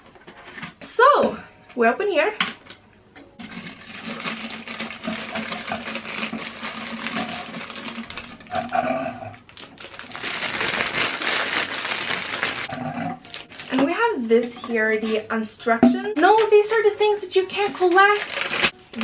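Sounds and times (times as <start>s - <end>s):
packaging crackling and crinkling: 3.4s - 14.2s, 16.2s - 19.0s.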